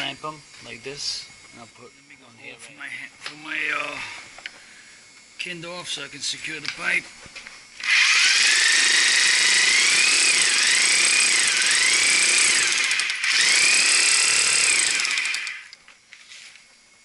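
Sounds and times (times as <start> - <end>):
hammer drill boring: 7.8 - 15.8.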